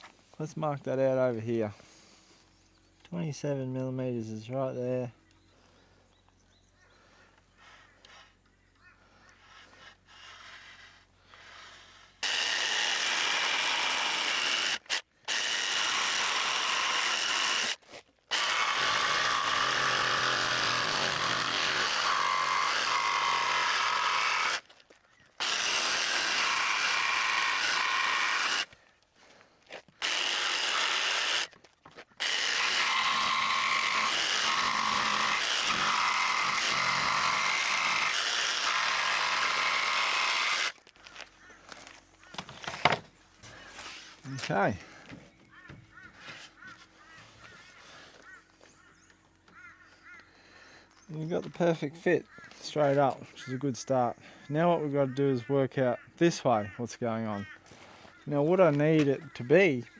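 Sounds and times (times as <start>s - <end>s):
power saw cutting wood: 9.2s - 28.8s, 29.7s - 48.7s, 51.1s - 55.5s.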